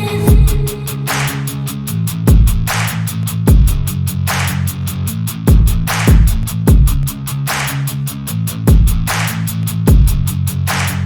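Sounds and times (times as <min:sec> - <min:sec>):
deep falling bass hit: 0:00.0 - 0:04.0
music with steady beat: 0:00.0 - 0:11.0.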